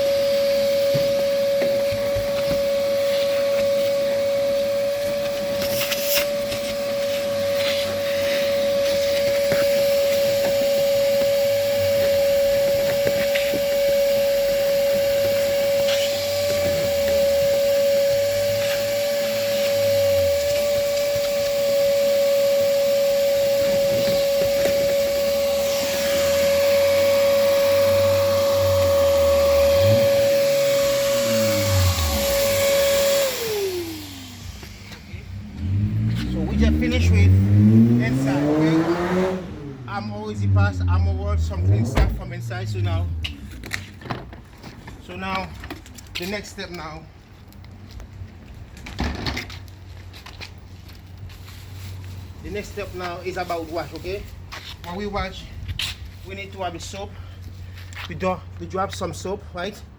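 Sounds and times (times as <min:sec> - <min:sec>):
vacuum cleaner whining: 0:00.0 - 0:43.9.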